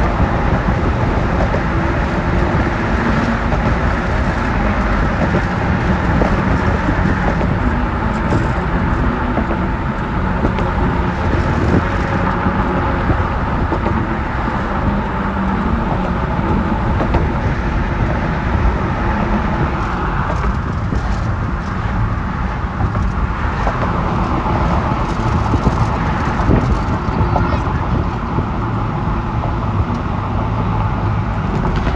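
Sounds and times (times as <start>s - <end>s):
wind blowing: 0.0s - 31.9s.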